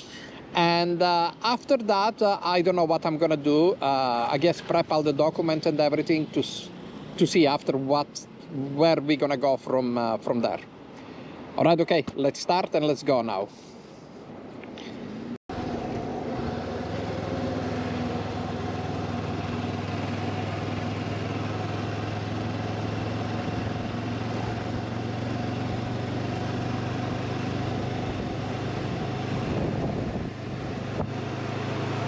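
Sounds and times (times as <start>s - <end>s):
motorcycle engine running: 15.5s - 32.0s.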